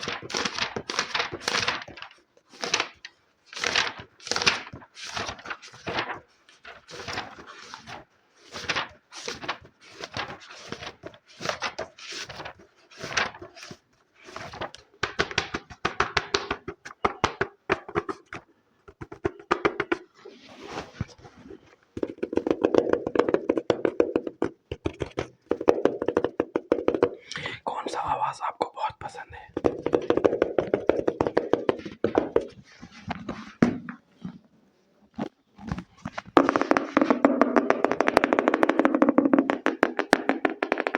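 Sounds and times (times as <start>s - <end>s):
fast tapping on objects: 14.6s - 20.1s, 22.0s - 27.6s, 29.5s - 32.6s, 36.1s - 40.9s.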